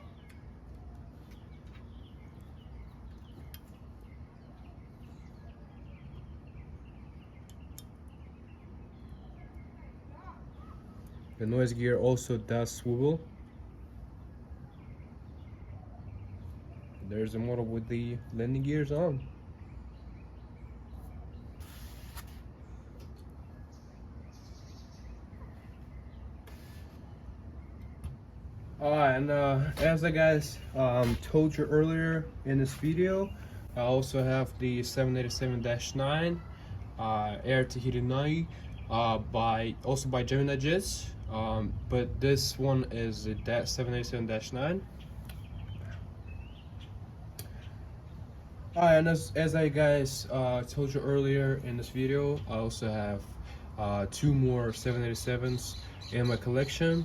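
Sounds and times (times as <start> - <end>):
faint bird chirping: 0.0 - 57.0
steady low hum: 0.0 - 57.0
soft rustling hisses: 21.0 - 23.2, 25.8 - 27.2.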